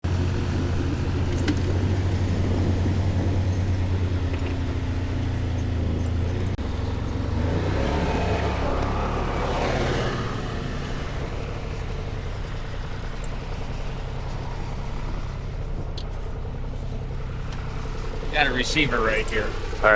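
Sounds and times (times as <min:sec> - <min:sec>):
vehicle engine rumbling: 0:00.0 - 0:19.9.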